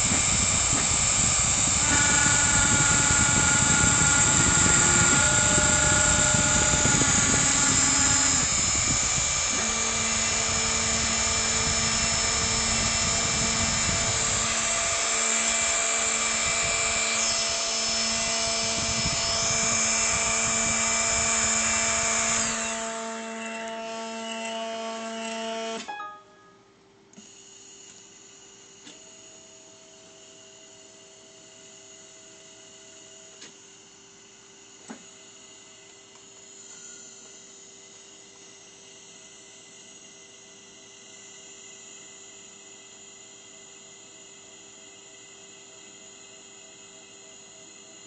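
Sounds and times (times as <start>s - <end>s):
drive motor tones: 0.0s - 24.6s
cnc router cutting wood: 0.0s - 25.9s, 28.6s - 48.0s.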